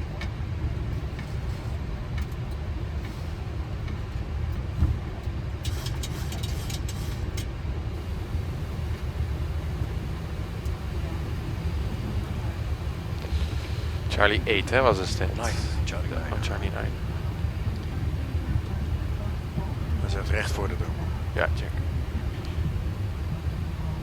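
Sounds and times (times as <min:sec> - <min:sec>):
airliner cockpit rumble: 0:00.0 - 0:24.0
faint clicks: 0:05.6 - 0:20.0.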